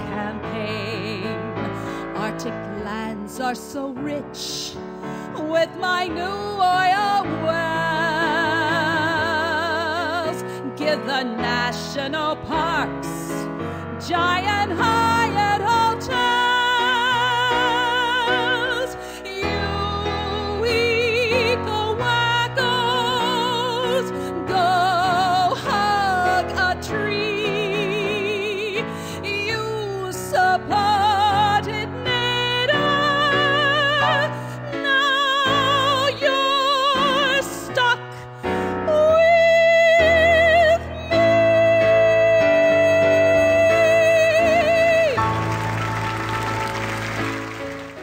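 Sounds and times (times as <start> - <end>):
woman singing operatically: 0.0 - 45.6
instrumental accompaniment: 41.2 - 48.0.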